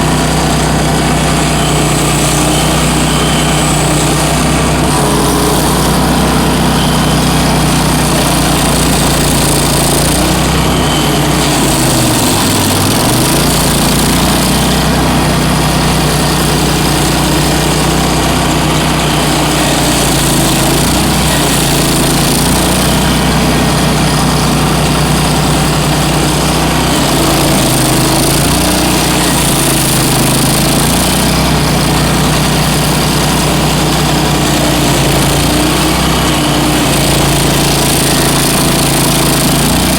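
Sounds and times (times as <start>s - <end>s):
stump grinder engine running: 0.0s - 39.9s.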